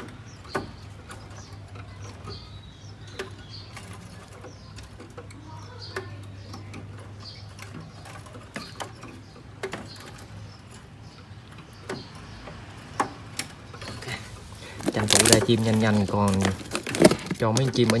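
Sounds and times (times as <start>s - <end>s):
nestlings chirping: 0.0s - 18.0s
handling clicks and taps: 14.7s - 18.0s.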